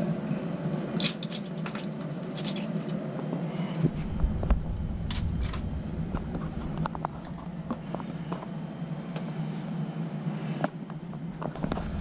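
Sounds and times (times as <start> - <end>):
air conditioner humming: 0.0 - 12.0
metal parts clicking and scraping: 1.0 - 3.0, 5.0 - 5.7
low rumble: 3.8 - 8.4.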